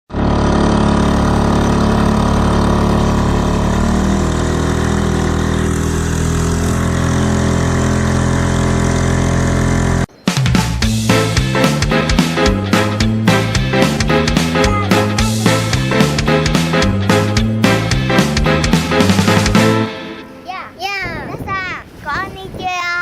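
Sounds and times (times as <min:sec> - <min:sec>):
outboard motor running: 0:00.1 - 0:10.1, 0:11.2 - 0:20.3
music: 0:10.1 - 0:20.5.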